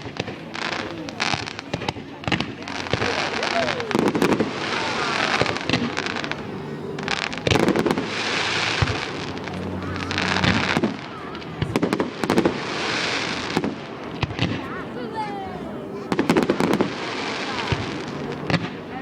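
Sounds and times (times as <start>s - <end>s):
firework crackling hiss: 0.0s - 14.6s
firework bangs: 0.0s - 14.7s, 16.1s - 18.9s.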